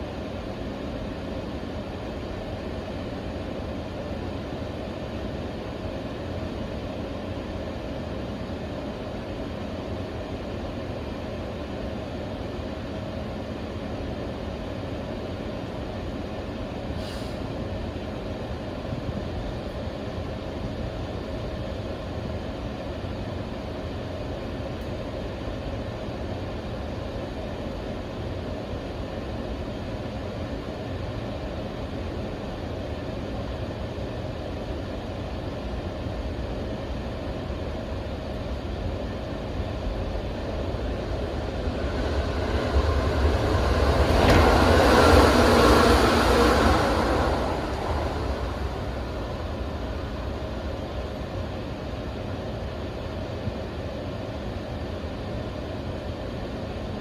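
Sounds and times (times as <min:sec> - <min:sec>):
train car equipment humming: 0:00.0 - 0:57.0
brief hiss: 0:16.9 - 0:17.6.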